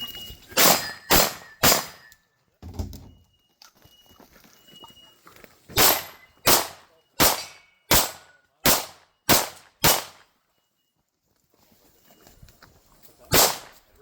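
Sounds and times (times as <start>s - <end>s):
gunshots with ringing tail: 0.6s - 2.1s, 5.8s - 10.3s, 13.3s - 13.8s.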